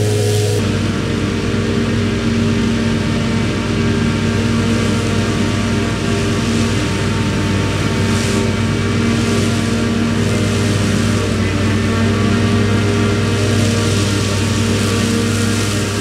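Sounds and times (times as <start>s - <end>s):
rushing noise: 0.0s - 1.1s
diesel machinery engine drone: 0.0s - 16.0s.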